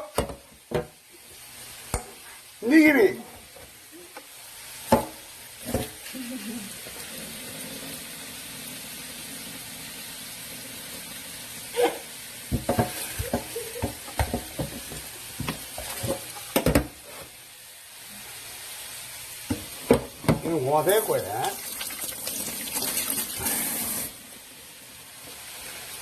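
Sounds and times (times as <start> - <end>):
food sizzling in a frying pan: 0.0 - 26.0
utensil knocking against pan: 12.5 - 16.9.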